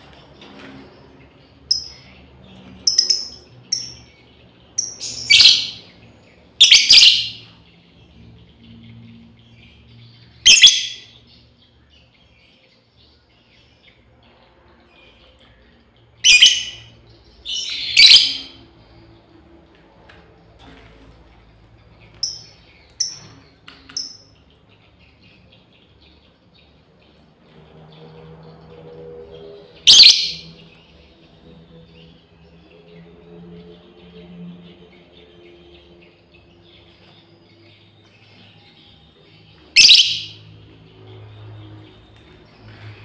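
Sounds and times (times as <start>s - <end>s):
lovebird chirping and calling: 1.7s - 2.2s, 2.8s - 4.2s, 4.8s - 5.9s, 6.6s - 7.5s, 10.4s - 11.2s, 16.2s - 18.6s, 22.2s - 24.3s, 29.8s - 30.6s, 39.7s - 40.5s.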